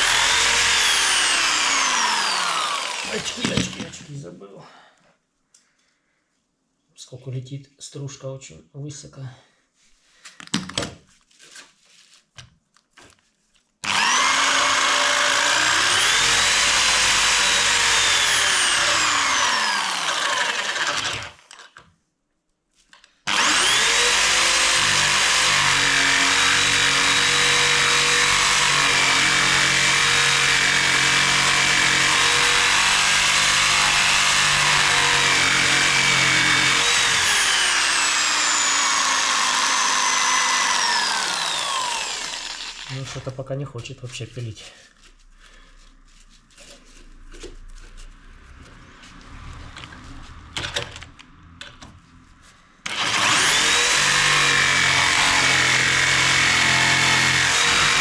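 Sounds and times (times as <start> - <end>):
electric jigsaw sawing wood: 0.0 - 4.1, 13.8 - 21.9, 23.3 - 43.4, 52.8 - 58.0.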